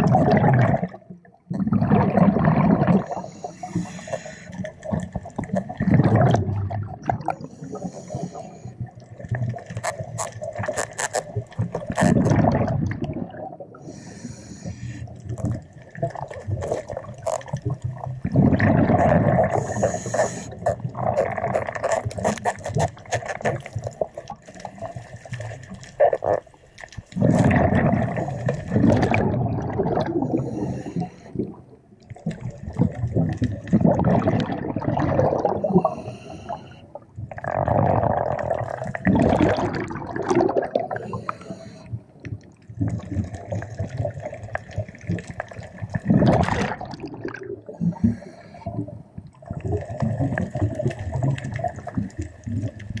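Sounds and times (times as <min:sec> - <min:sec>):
exhaust bubbles rushing: 0:00.0 - 0:03.2, 0:04.9 - 0:07.5, 0:11.9 - 0:13.7, 0:17.7 - 0:19.7, 0:27.2 - 0:30.6, 0:32.4 - 0:35.8, 0:37.3 - 0:41.1, 0:45.9 - 0:47.8
regulator inhale hiss: 0:03.1 - 0:04.7, 0:07.5 - 0:08.7, 0:13.8 - 0:15.1, 0:19.6 - 0:20.6, 0:30.4 - 0:31.4, 0:35.8 - 0:36.8, 0:41.0 - 0:41.9, 0:47.8 - 0:48.7.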